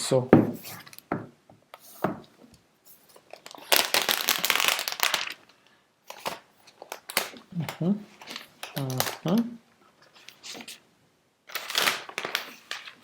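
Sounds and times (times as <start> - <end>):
packaging crinkling: 3.0 - 9.5, 11.5 - 13.0.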